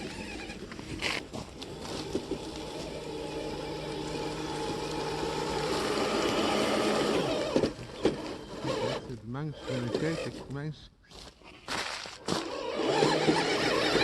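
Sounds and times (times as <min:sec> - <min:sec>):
toy truck electric motor whining: 0:00.0 - 0:10.5, 0:12.2 - 0:14.0.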